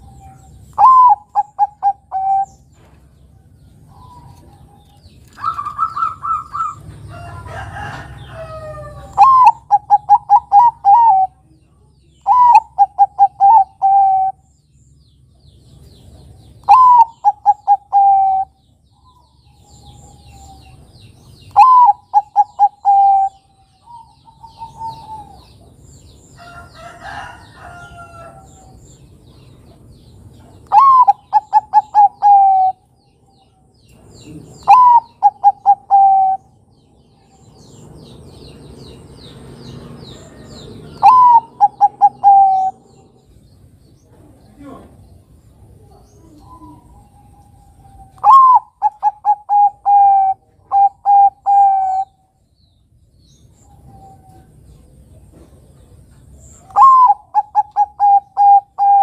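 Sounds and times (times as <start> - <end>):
dove cooing: 0.0 - 2.6, 3.9 - 11.4, 12.2 - 14.4, 16.6 - 18.6, 21.5 - 25.7, 30.6 - 32.8, 34.2 - 36.6, 40.7 - 43.1, 45.7 - 52.2, 56.6 - 59.0
small birds chirping: 0.0 - 59.0.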